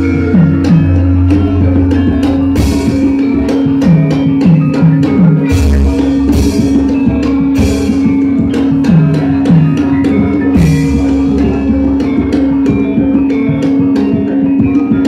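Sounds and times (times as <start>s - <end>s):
gamelan ensemble playing: 0.0s - 15.0s
hand drum strokes: 0.0s - 15.0s
struck metallophone notes: 0.0s - 15.0s.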